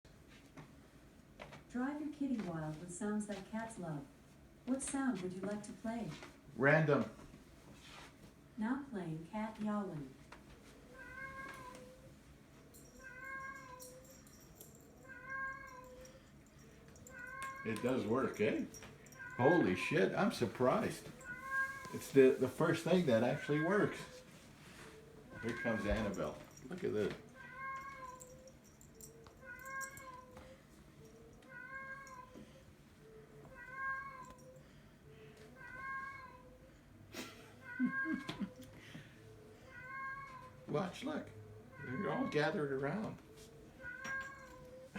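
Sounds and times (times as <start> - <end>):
recorded cat meowing from speaker: 41.7 - 42.6.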